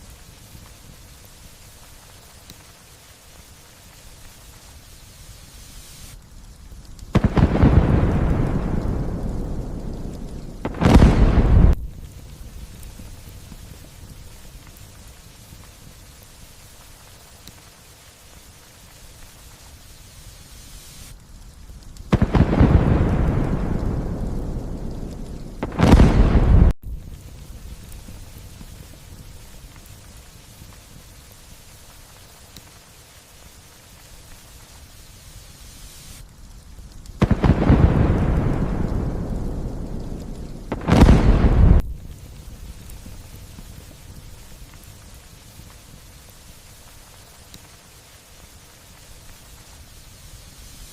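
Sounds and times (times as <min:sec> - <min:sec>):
light rain hiss: 0:00.0 - 0:50.9
thunderclap with deep rumble: 0:07.1 - 0:15.1, 0:22.0 - 0:31.1, 0:36.8 - 0:46.2.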